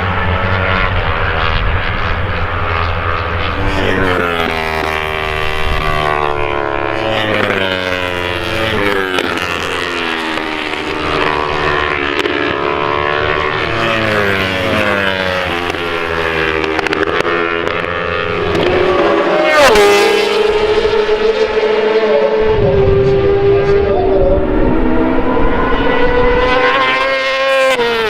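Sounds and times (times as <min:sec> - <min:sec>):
racing motorcycles revving past: 0:00.0 - 0:28.0.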